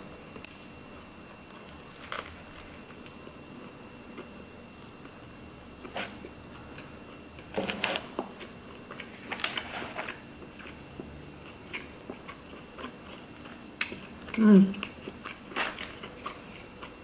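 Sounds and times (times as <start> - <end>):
person chewing burger: 5.8 - 17.0.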